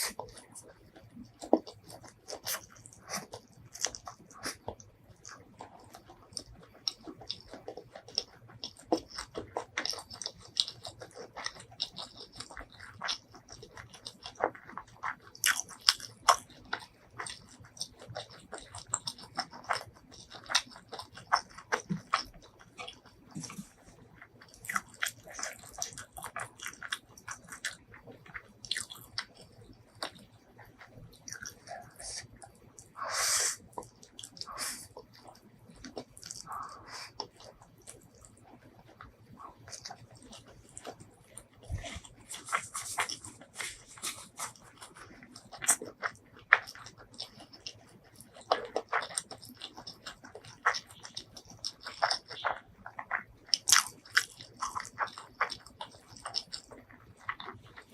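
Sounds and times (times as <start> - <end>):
noisy mouth sound: 0.0 - 7.7, 30.2 - 48.8
crunching and chewing crispy food: 0.0 - 57.9.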